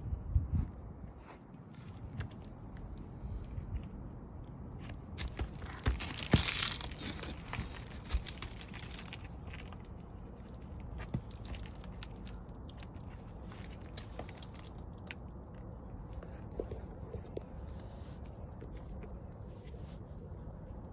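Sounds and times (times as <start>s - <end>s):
roof shingles crunching and scraping: 4.8s - 15.2s.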